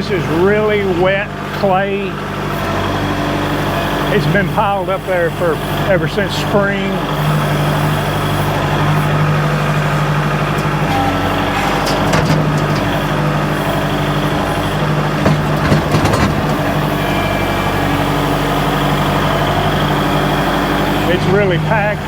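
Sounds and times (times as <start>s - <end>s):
tractor diesel engine running: 0.0s - 22.0s
short knocks: 8.9s - 18.2s.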